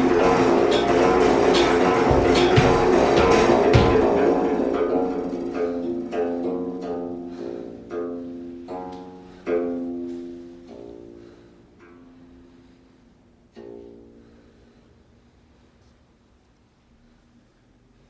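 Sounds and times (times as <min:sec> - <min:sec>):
plucked zither notes: 0:00.0 - 0:11.2.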